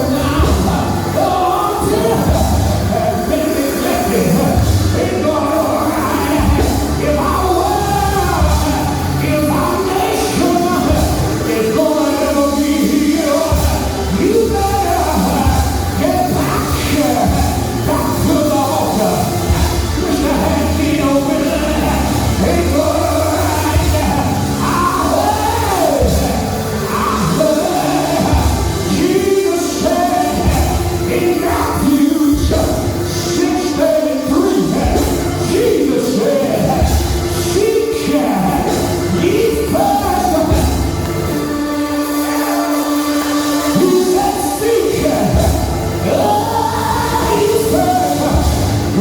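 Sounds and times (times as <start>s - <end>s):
person singing: 0.0s - 49.0s
sustained chords over bass: 0.0s - 49.0s.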